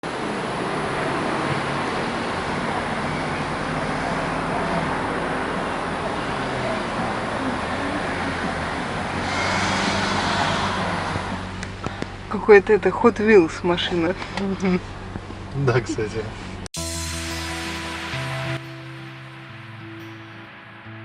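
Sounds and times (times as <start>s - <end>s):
car road and tyre noise: 0.0s - 16.7s.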